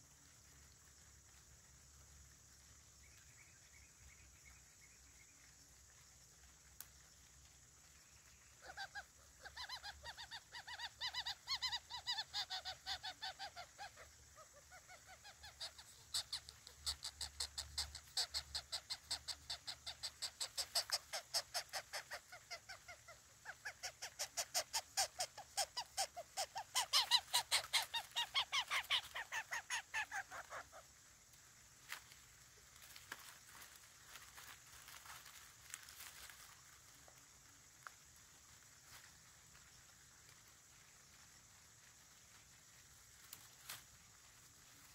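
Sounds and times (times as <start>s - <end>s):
bird chick begging calls: 23.6s - 30.7s.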